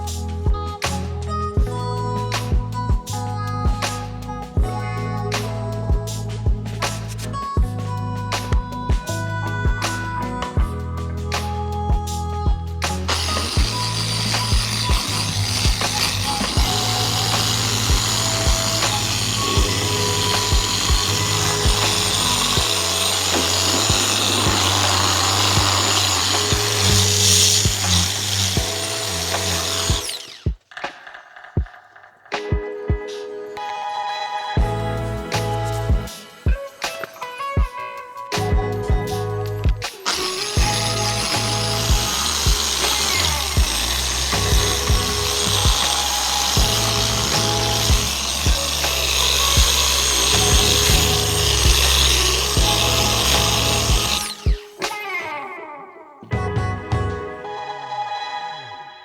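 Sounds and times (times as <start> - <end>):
background music with bass beat: 0.0 - 15.9, 34.6 - 40.8
background music with beat: 0.0 - 59.0
power tool sanding plastic: 12.8 - 30.6, 40.0 - 55.0.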